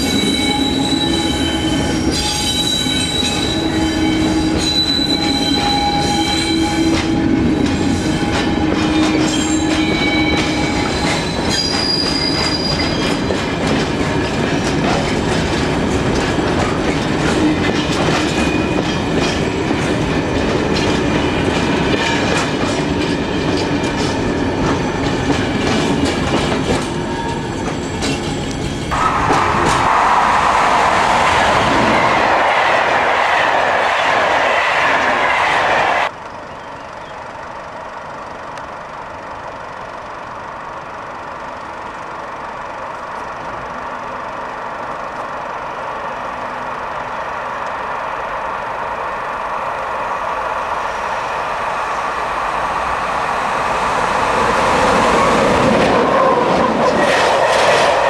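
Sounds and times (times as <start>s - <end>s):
fast train rushing past: 0.0s - 36.2s, 43.7s - 58.0s
electric locomotive approaching: 0.0s - 58.0s
train wheels clacking over rail joints: 2.0s - 35.3s.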